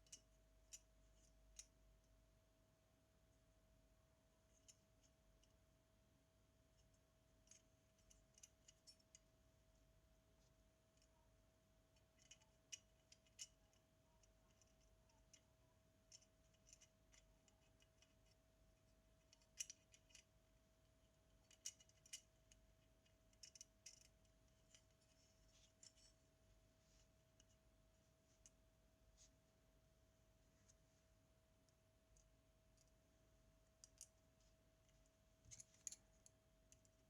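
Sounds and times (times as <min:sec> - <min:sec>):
faint steady hum: 0:00.0 - 0:37.0
small tools clicking on metal parts: 0:23.4 - 0:24.1.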